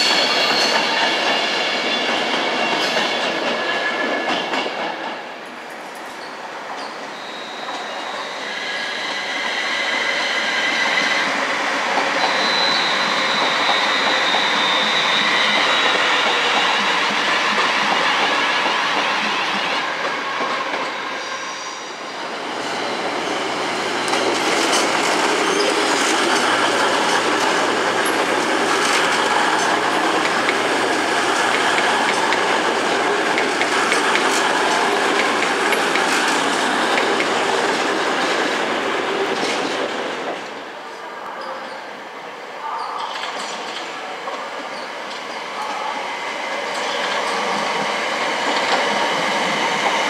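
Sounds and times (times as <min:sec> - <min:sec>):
electric train passing: 0:00.0 - 0:40.9, 0:43.6 - 0:50.0.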